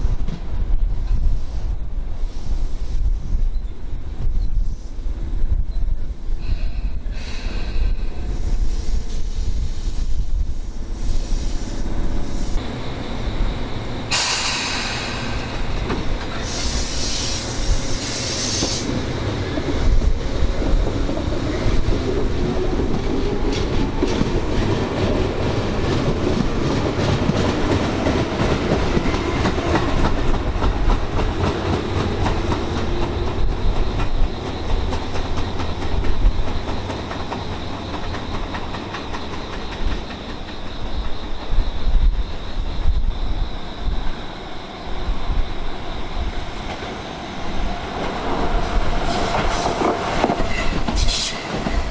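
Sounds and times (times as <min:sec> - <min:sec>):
wind rumbling on microphone: 0:00.0 - 0:51.9
high hiss bursts: 0:14.0 - 0:19.2
train wheels clacking over rail joints: 0:14.1 - 0:41.7, 0:48.0 - 0:51.9.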